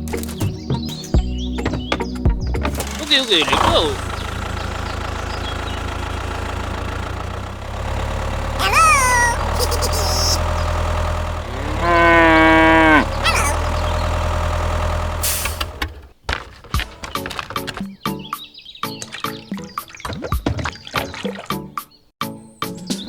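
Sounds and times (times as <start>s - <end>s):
small engine humming: 2.7s - 16.0s
high animal call falling in pitch: 8.6s - 10.4s, 11.6s - 13.7s
long moo-like call: 11.4s - 13.7s.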